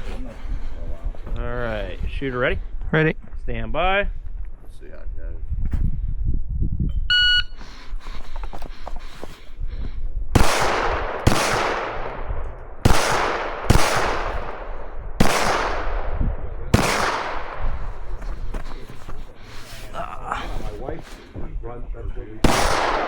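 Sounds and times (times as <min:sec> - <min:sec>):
pistol shots with echo: 0:10.4 - 0:18.1, 0:22.4 - 0:23.0.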